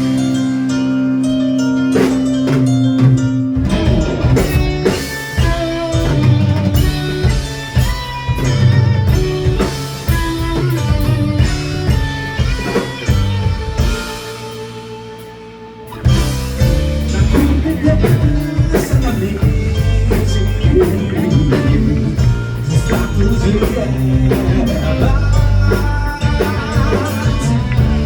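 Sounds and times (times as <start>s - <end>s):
bass guitar: 0.0s - 28.0s
drum kit: 0.0s - 28.0s
electric guitar: 0.0s - 28.0s.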